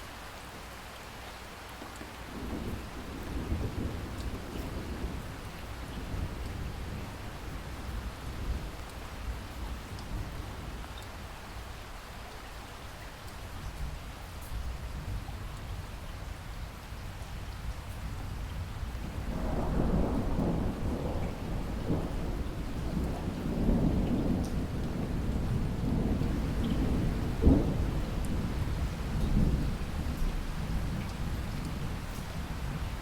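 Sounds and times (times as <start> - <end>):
steady rain: 0.0 - 33.0
thunder rolling: 19.1 - 32.0
sharp thunder clap: 19.3 - 28.6.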